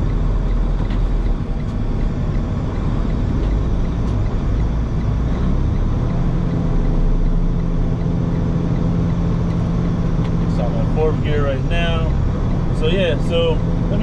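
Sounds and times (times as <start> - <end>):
diesel engine droning: 0.0 - 14.0
road noise: 0.0 - 14.0.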